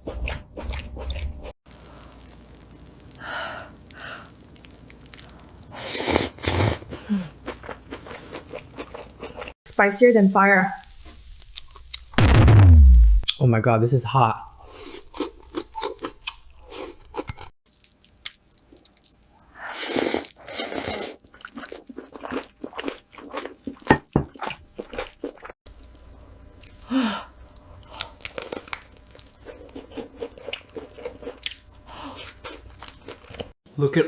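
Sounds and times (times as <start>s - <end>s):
wet chewing and crunching: 0.0s - 6.4s, 7.3s - 9.6s, 14.9s - 26.9s, 27.5s - 33.6s.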